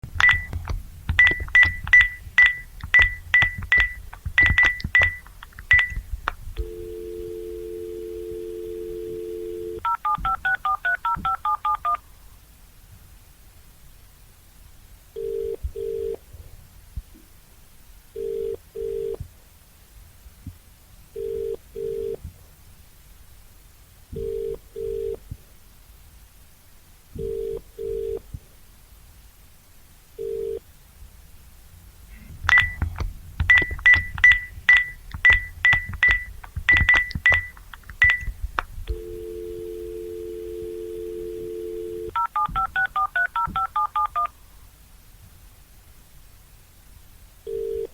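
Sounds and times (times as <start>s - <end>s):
sharp clicks: 0.1s - 6.4s, 32.4s - 39.0s
short high beeps: 0.2s - 0.6s, 1.2s - 6.0s, 32.5s - 32.8s, 33.5s - 38.3s
dial tone: 6.6s - 12.0s, 38.9s - 44.3s, 47.5s - 47.9s
telephone ringback tone: 6.6s - 12.0s, 38.9s - 44.3s.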